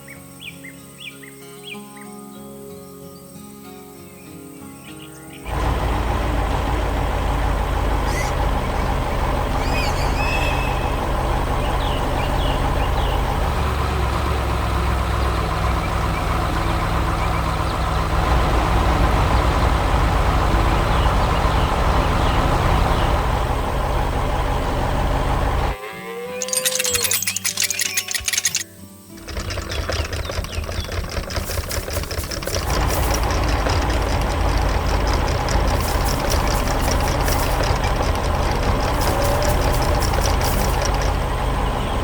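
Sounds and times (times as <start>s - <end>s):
heavy farm machine engine: 5.5s - 25.8s, 29.2s - 42.0s.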